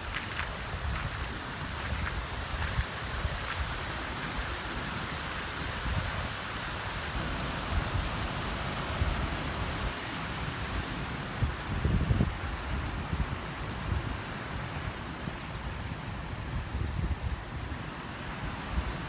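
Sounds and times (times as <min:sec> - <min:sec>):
floodwater rushing: 0:00.0 - 0:05.8
wind buffeting microphone: 0:00.0 - 0:10.0, 0:10.6 - 0:14.3.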